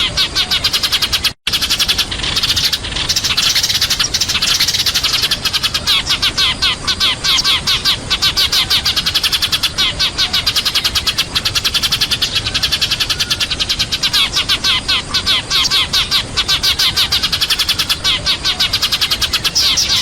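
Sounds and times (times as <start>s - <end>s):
sparrows chirping: 0.0s - 20.0s.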